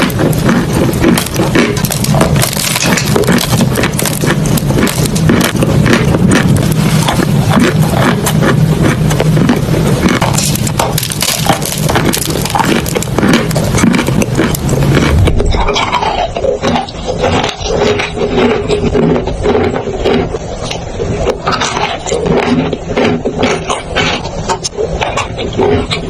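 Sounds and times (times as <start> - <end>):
crunching of crumbly material: 0.0 - 26.0
low rumble: 14.1 - 17.1.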